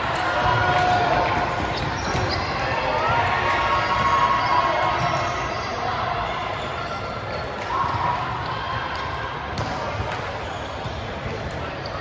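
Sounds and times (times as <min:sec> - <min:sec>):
shoes squeaking on court floor: 0:01.6 - 0:02.8.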